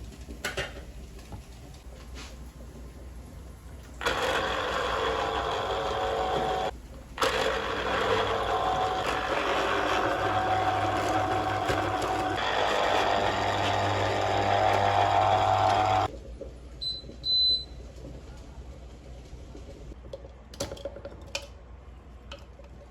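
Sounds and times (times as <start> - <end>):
blender motor running: 4.0 - 16.1.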